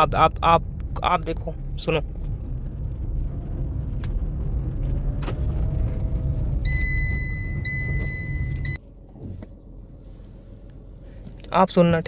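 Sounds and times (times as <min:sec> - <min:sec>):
car cabin road rumble: 0:00.0 - 0:12.0
high electronic beep: 0:06.7 - 0:08.8.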